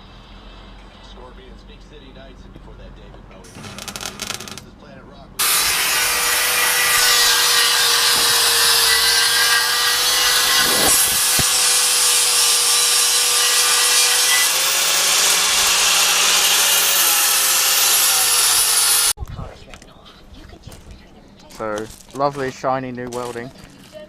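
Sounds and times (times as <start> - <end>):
welding arc crackling hiss: 3.5 - 4.6.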